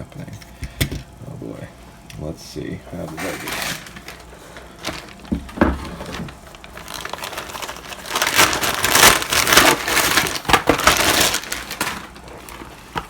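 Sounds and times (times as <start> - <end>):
packaging rustling and crinkling: 3.0 - 13.0.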